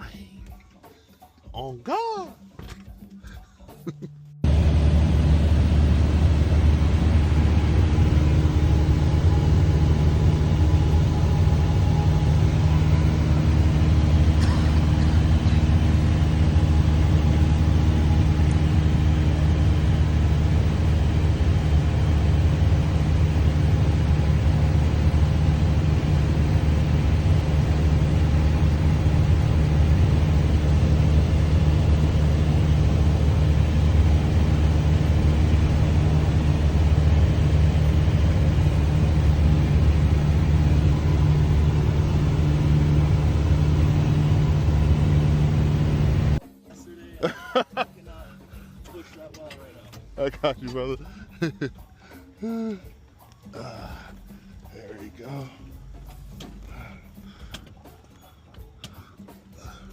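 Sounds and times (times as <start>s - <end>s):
propeller airplane engine droning: 4.4s - 46.4s.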